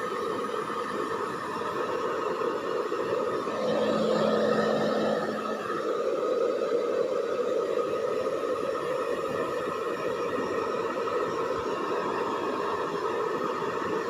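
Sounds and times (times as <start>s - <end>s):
hair dryer whirring: 3.0s - 6.6s.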